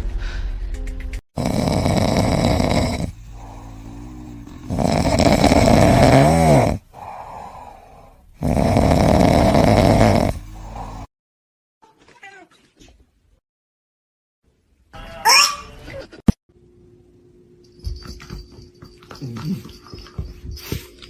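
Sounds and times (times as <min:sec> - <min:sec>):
loud snoring: 0:01.4 - 0:11.1
quiet breathing: 0:01.4 - 0:11.1.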